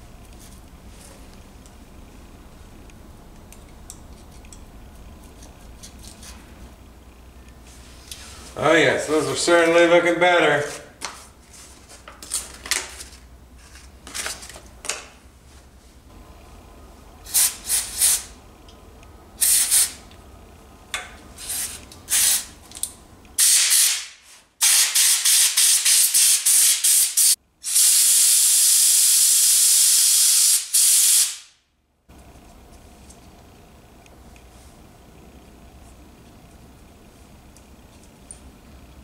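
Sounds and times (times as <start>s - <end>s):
aerosol spray hissing: 19.4s - 20.0s.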